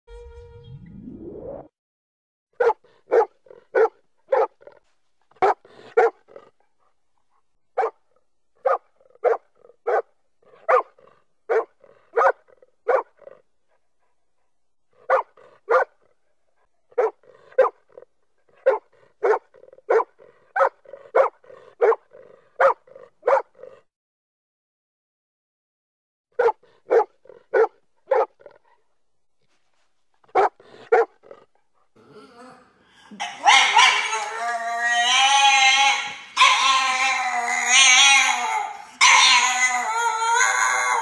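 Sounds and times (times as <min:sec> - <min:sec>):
dog barking: 0:02.6 - 0:06.5, 0:07.8 - 0:13.4, 0:15.0 - 0:16.1, 0:16.9 - 0:23.8, 0:26.4 - 0:28.6, 0:30.3 - 0:31.4, 0:33.2 - 0:34.3, 0:35.8 - 0:37.1, 0:37.7 - 0:39.5.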